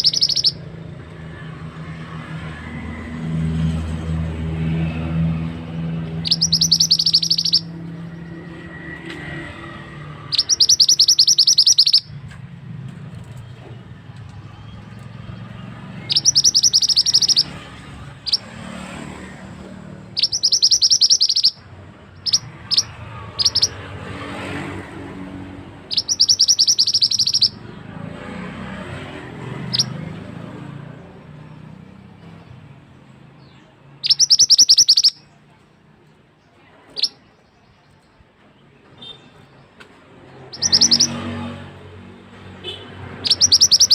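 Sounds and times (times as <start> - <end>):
bird harsh rattling trill: 0.0 - 0.6, 6.1 - 7.7, 10.2 - 12.1, 16.0 - 17.6, 20.1 - 21.6, 22.2 - 23.8, 25.9 - 27.6, 34.0 - 35.2, 40.5 - 41.2, 43.2 - 43.9
sharp bird notes: 0.0 - 0.7, 5.8 - 8.6, 9.6 - 12.2, 14.6 - 18.7, 20.0 - 24.6, 25.8 - 28.3, 34.0 - 35.4, 40.5 - 41.6, 42.7 - 43.9.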